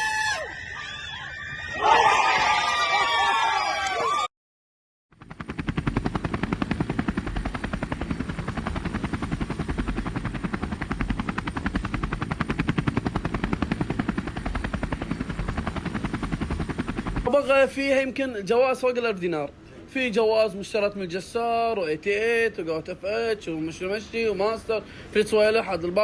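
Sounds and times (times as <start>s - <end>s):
machine pulsing rapidly: 5.2s - 17.3s.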